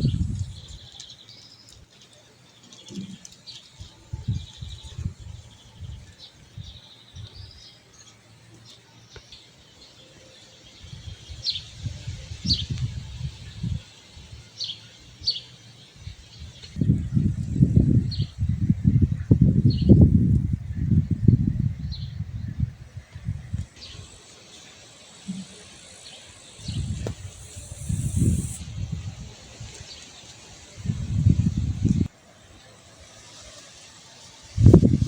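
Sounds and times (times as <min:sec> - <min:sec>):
wind buffeting microphone: 0:00.0 - 0:00.9, 0:03.8 - 0:07.6, 0:10.8 - 0:14.4, 0:16.0 - 0:24.2, 0:25.3 - 0:30.0, 0:30.6 - 0:32.1, 0:34.5 - 0:35.0
small birds chirping: 0:00.0 - 0:35.0.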